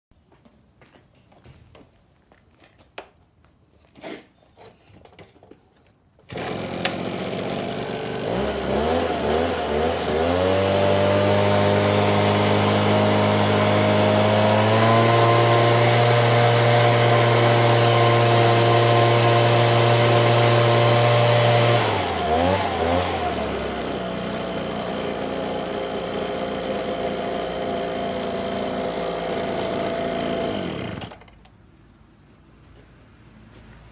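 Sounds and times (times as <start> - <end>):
engine blower running: 6.3 - 31.4.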